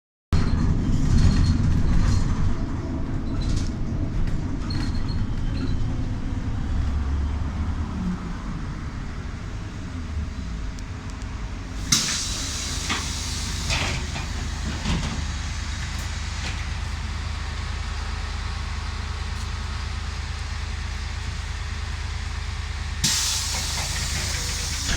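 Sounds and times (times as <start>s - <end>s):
trolleybus rumble on board: 0.3s - 24.9s
compressed air hiss: 11.8s - 14.8s, 23.0s - 24.9s.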